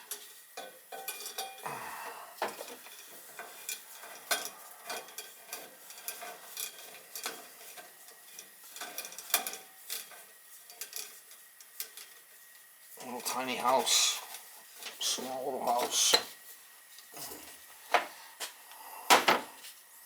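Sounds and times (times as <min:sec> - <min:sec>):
light metallic clinks and taps: 0:00.1 - 0:01.6, 0:02.4 - 0:12.7.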